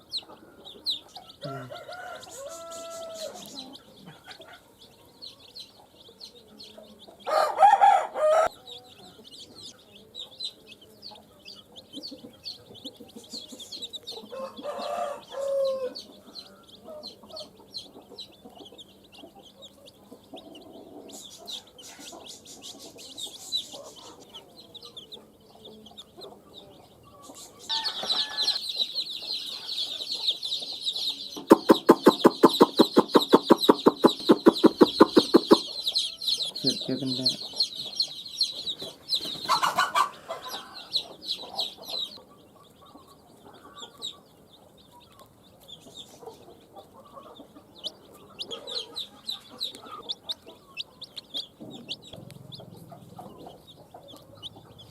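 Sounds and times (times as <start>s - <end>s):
baby chicks peeping: 0.0s - 54.9s
chicken calling loudly: 31.5s - 36.3s.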